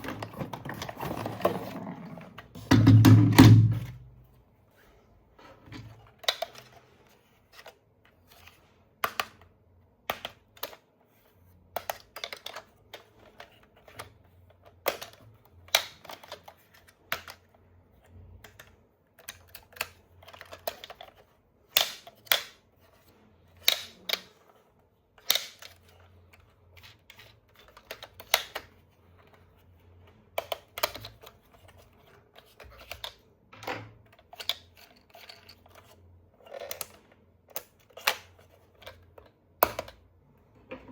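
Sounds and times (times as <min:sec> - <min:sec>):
plastic toys clicking and tapping: 0:11.7 - 0:17.6, 0:18.4 - 0:22.6, 0:23.6 - 0:24.5, 0:25.2 - 0:29.3, 0:30.4 - 0:33.2, 0:34.0 - 0:40.0.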